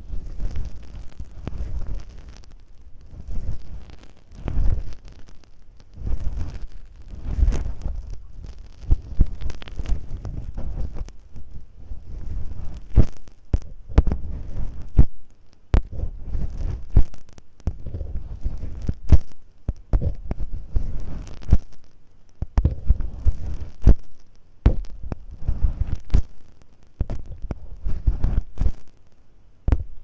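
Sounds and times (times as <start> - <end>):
masking tape scraping microphone: 0.0 - 29.1, 29.7 - 30.0.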